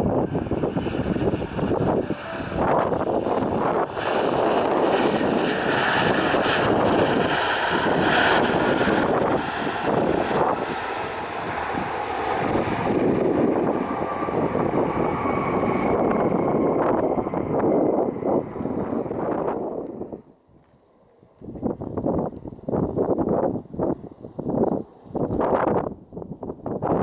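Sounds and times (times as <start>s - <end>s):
jet engines running: 0.0s - 25.8s
wind buffeting microphone: 0.0s - 27.0s
thin high whine: 0.4s - 4.0s.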